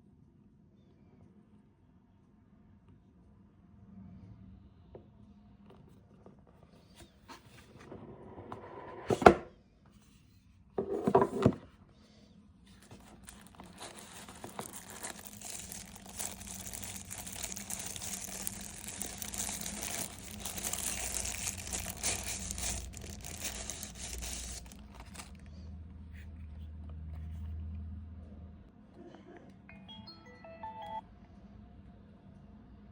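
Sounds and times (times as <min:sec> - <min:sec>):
packaging crinkling and tearing: 0:12.8 - 0:25.5.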